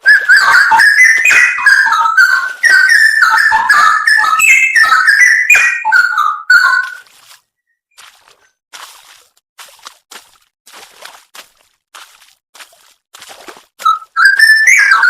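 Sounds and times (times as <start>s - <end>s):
bird singing whistled phrases: 0.0s - 7.0s, 13.8s - 15.0s.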